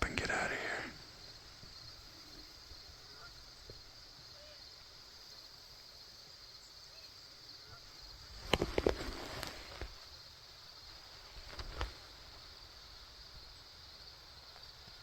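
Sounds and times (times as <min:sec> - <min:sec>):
insects chirping: 0:00.0 - 0:15.0
close knocks and rustling: 0:08.4 - 0:10.0.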